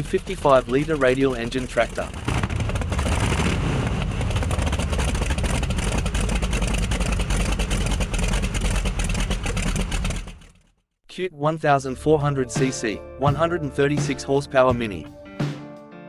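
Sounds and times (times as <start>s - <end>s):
tractor radial engine running: 0.1s - 10.6s.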